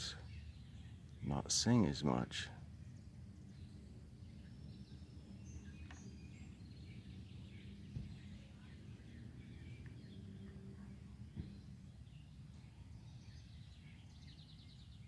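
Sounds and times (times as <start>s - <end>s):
faint songbird chirps: 0.0s - 15.0s
low background rumble: 0.0s - 15.0s
soft thump: 7.9s - 8.2s, 11.3s - 11.6s.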